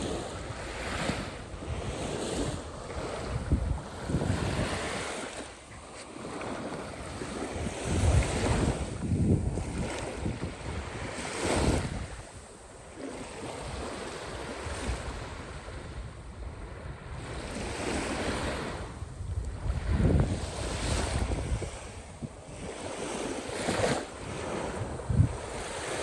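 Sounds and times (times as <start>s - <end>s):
sea waves breaking: 0.0s - 26.0s
wind rumbling on microphone: 0.0s - 26.0s.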